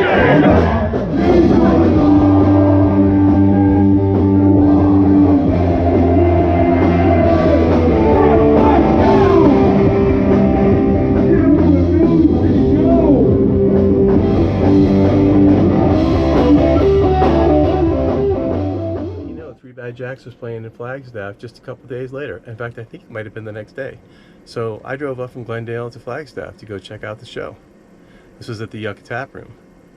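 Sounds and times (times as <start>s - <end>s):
rock music: 0.0s - 19.6s.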